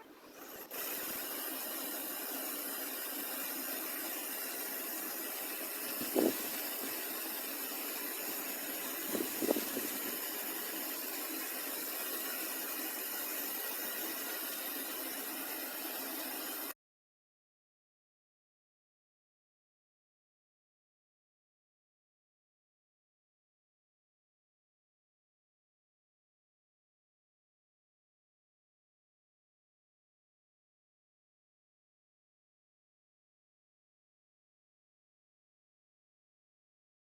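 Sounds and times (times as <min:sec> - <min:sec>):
fan blowing air: 0:00.0 - 0:16.7.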